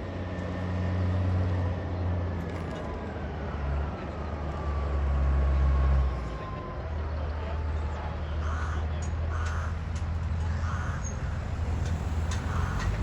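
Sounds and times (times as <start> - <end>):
tractor engine running: 9.1 - 13.0.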